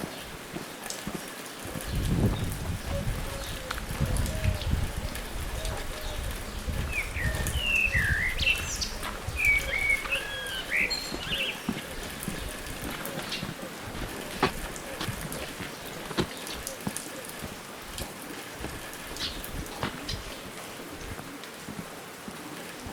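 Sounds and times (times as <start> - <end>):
steady outdoor hiss: 0.0 - 22.9.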